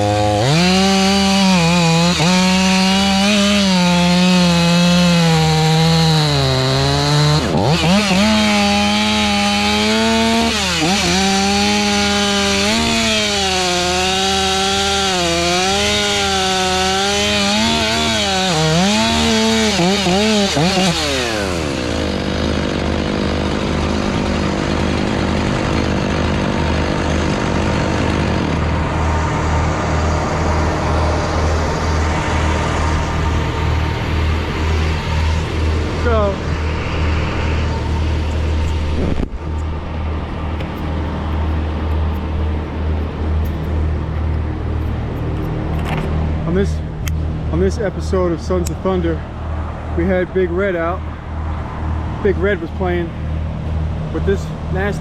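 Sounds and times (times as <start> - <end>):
chainsaw cutting wood: 0.0 - 46.2
low machinery engine rumble: 21.3 - 55.0.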